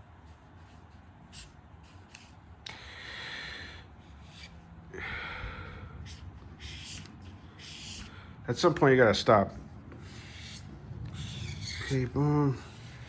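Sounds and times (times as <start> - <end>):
markers rubbing across paper: 0.0 - 2.5, 4.0 - 4.7, 6.0 - 8.1, 9.1 - 13.0.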